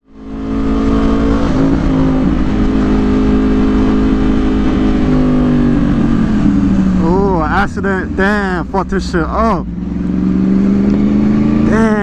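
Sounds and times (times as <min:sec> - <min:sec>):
motorcycle engine cruising: 0:00.0 - 0:12.0
road and wind rumble: 0:00.0 - 0:12.0.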